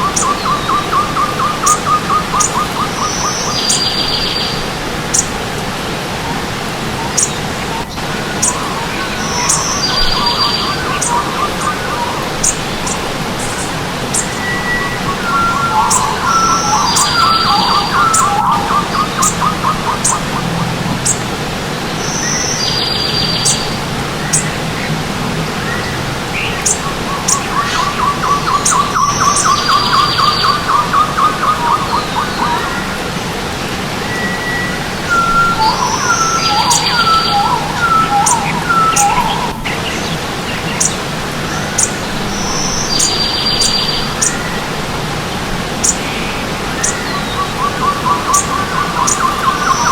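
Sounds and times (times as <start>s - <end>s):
birds chirping and warbling: 0.0s - 49.9s
stream water running: 0.0s - 49.9s
bird repeating fast notes: 8.4s - 21.2s.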